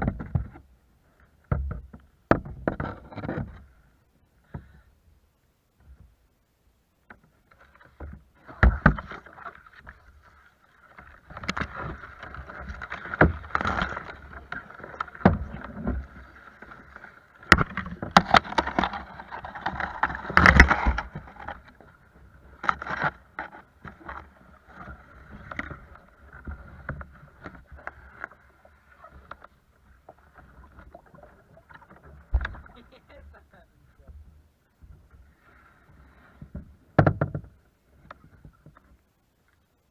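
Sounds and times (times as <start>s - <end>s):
knocks against kayak hull: 1.5s - 3.5s, 8.5s - 9.3s, 36.5s - 37.6s
kayak splashing: 7.0s - 39.9s.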